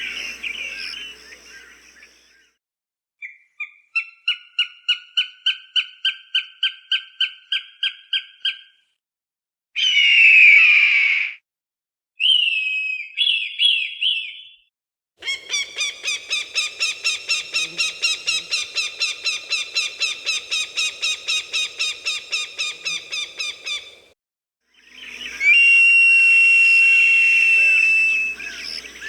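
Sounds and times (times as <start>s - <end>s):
falcon scream: 9.8s - 11.4s, 24.9s - 29.0s
falcon cackling calls: 15.2s - 24.0s.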